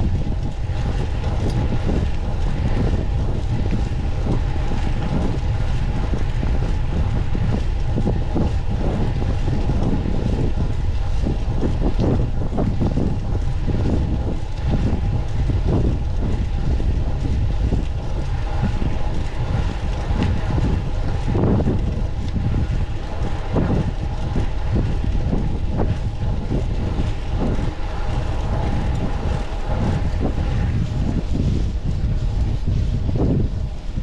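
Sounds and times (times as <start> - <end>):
faint constant hum: 0.0 - 34.0
road and tyre noise: 0.0 - 34.0
wind buffeting microphone: 0.0 - 34.0
small knocks from bicycle: 9.4 - 22.5.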